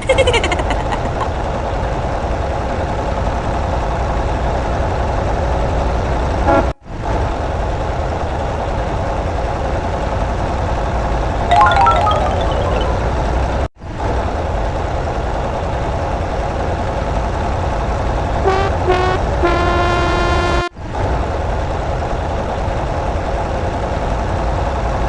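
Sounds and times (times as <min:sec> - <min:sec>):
horn toot: 0:18.4 - 0:20.7.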